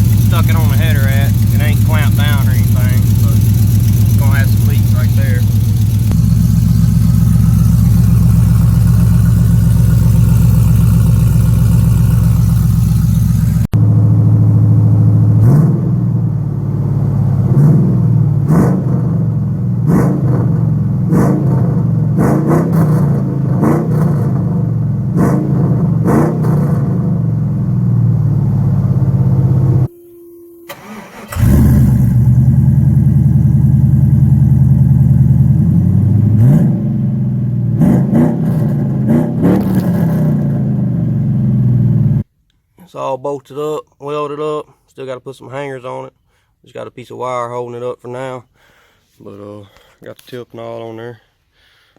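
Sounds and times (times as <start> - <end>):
truck engine idling and revving: 0.0 - 29.9, 30.7 - 42.3.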